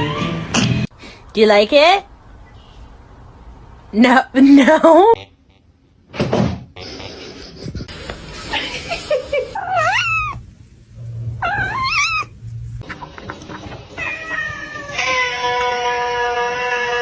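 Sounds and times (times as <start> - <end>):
cat yowling: 9.6 - 10.4, 11.4 - 12.3, 14.0 - 17.0.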